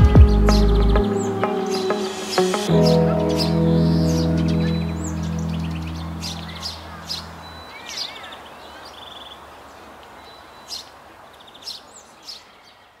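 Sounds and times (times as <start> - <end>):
held low music chord: 0.0 - 7.6
birds chirping and trilling: 0.0 - 13.0
faint outdoor hiss: 0.0 - 13.0.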